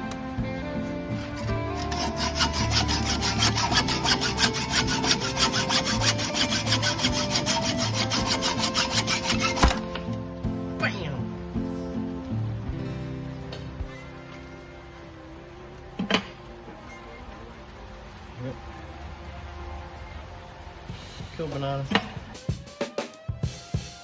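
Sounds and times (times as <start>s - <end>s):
background music: 0.0s - 24.0s
file rasping on metal: 1.8s - 9.9s.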